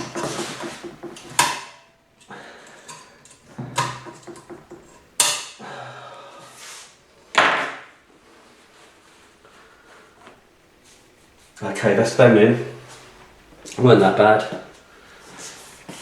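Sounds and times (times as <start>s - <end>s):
sharp metal knocks: 0.0s - 2.0s, 3.6s - 5.6s.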